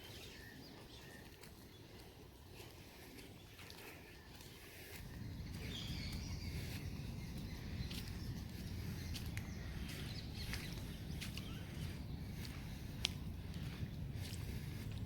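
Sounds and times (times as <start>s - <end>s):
bird chirps: 4.4s - 12.8s.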